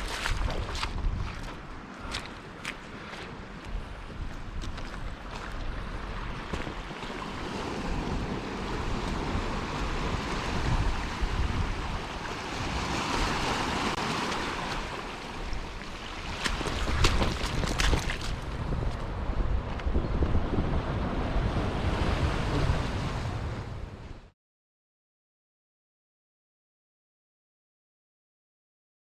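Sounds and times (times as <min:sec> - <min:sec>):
wind buffeting microphone: 0:00.0 - 0:24.2
waves washing against rocks: 0:06.5 - 0:19.0.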